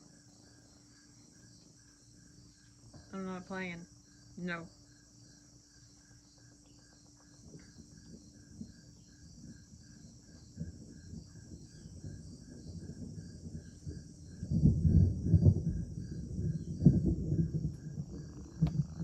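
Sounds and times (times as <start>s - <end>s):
crickets chirping: 0.0s - 19.0s
high insect trill: 0.0s - 19.0s
low rumbling noise: 10.7s - 19.0s.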